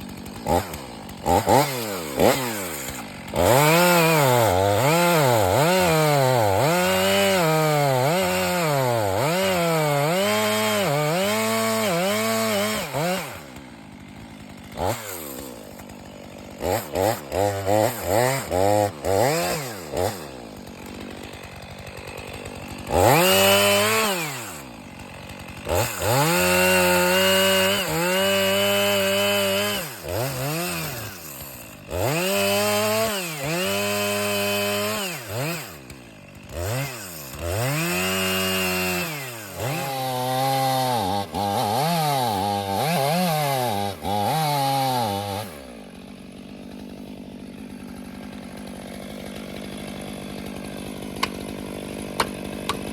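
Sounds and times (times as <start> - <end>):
chainsaw revving: 0.0 - 52.9.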